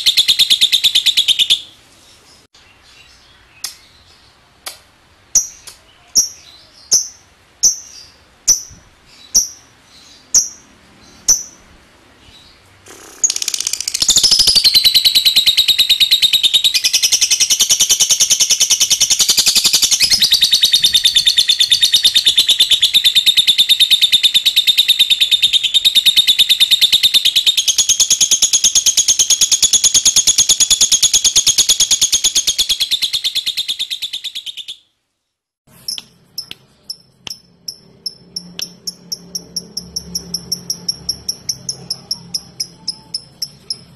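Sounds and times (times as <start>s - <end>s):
lovebird rattling chatter: 12.9s - 15.1s.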